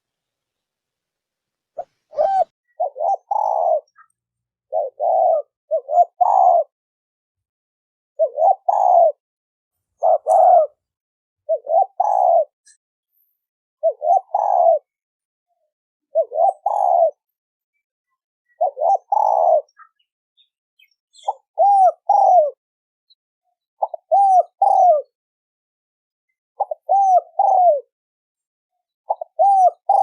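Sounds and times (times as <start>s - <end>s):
dove cooing: 1.8s - 4.1s, 4.7s - 6.7s, 8.2s - 9.2s, 10.0s - 10.8s, 11.5s - 12.6s, 13.8s - 15.0s, 16.1s - 17.2s, 18.5s - 20.0s, 21.1s - 22.6s, 23.8s - 25.2s, 26.6s - 27.9s, 29.1s - 30.0s.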